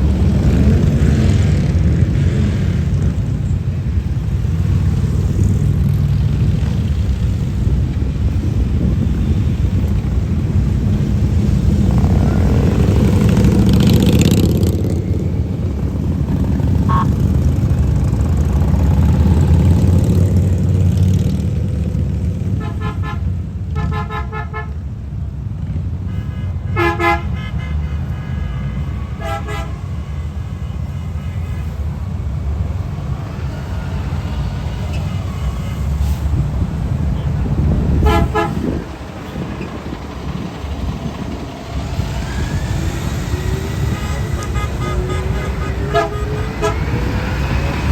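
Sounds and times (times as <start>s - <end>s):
motorcycles rumbling past: 0.0s - 7.9s, 9.1s - 22.7s, 36.4s - 47.9s
short horn toots: 26.1s - 31.8s, 38.0s - 38.9s, 43.3s - 47.8s.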